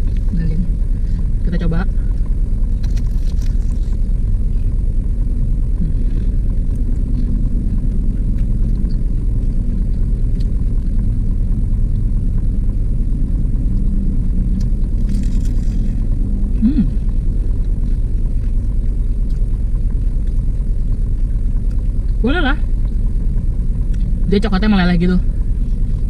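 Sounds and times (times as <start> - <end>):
car engine idling: 0.0 - 26.0
crunchy pie crust chewing: 2.8 - 4.3, 13.4 - 22.2.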